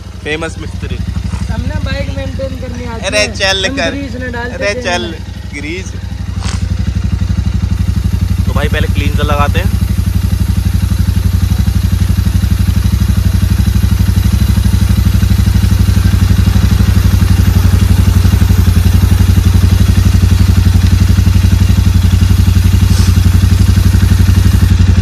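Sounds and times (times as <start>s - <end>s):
motorcycle engine idling: 0.0s - 25.0s
short hiss: 6.3s - 6.8s, 22.6s - 24.7s.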